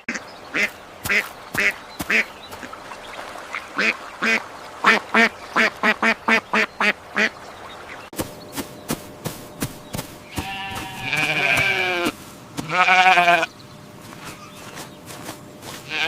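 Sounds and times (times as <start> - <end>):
duck quacking: 0.0 - 2.8, 3.5 - 7.3
sheep bleating: 10.3 - 13.5, 15.7 - 16.0.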